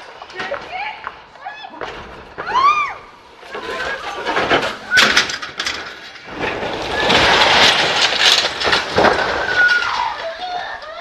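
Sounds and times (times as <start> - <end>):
sharp clatter: 3.5 - 11.0.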